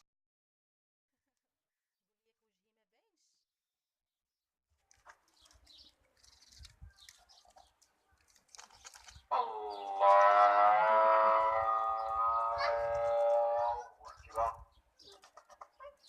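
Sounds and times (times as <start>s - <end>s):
cow mooing: 9.6s - 13.8s.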